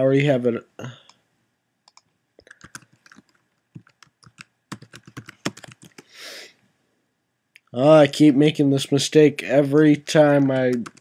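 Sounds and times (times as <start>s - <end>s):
keyboard typing clicks: 1.8s - 6.0s, 10.4s - 11.0s.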